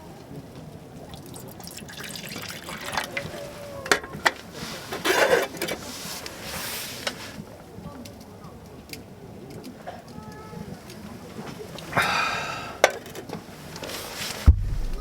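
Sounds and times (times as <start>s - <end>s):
liquid pouring and splashing: 1.1s - 3.5s.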